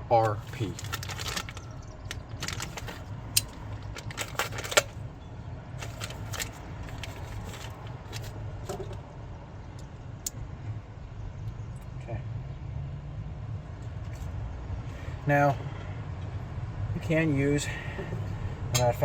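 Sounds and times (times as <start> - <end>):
metal tools clicking and clinking: 0.2 - 5.0, 5.8 - 8.9.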